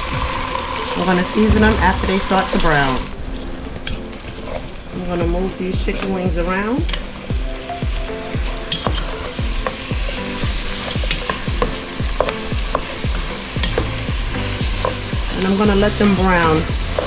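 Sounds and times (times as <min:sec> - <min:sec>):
wings sizzling in hot oil: 0:05.3 - 0:17.0.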